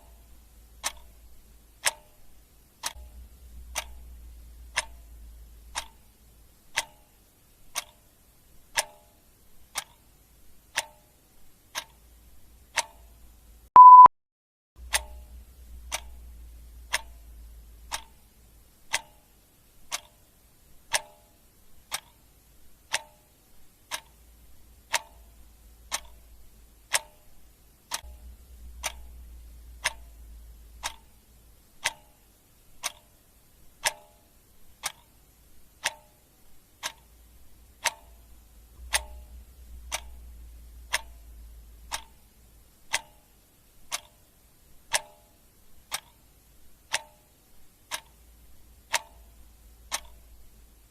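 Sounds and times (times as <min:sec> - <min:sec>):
faint low rumble: 0:00.0 - 0:08.8, 0:14.8 - 0:19.0, 0:21.7 - 0:33.9, 0:36.4 - 0:45.0, 0:47.5 - 0:50.9
clock ticking: 0:00.0 - 0:14.1, 0:14.8 - 0:50.9.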